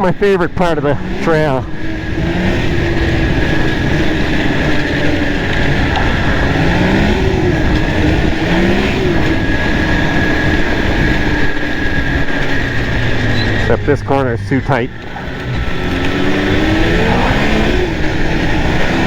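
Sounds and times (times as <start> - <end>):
snowmobile engine running hard: 0.0 - 19.0
wind noise on microphone: 1.7 - 13.9.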